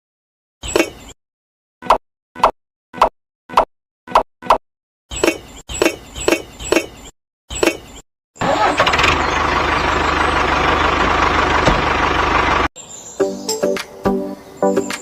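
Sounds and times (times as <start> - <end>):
tractor engine running: 8.4 - 12.7.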